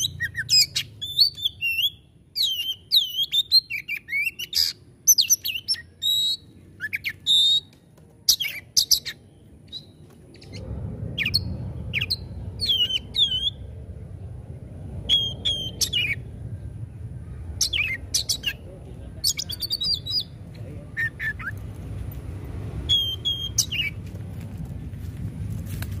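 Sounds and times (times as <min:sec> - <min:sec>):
bird singing whistled notes: 0:00.0 - 0:07.7, 0:08.3 - 0:10.6, 0:11.2 - 0:13.7, 0:15.1 - 0:16.3, 0:17.6 - 0:18.6, 0:19.2 - 0:20.4, 0:21.0 - 0:21.6, 0:22.9 - 0:24.0
steady low rumble: 0:09.2 - 0:26.0.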